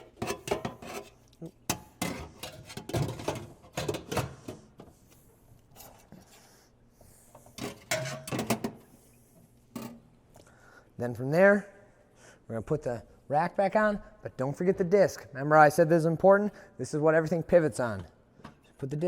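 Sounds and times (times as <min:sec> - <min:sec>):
dishwasher parts clattering: 0:00.0 - 0:04.7, 0:07.6 - 0:08.8.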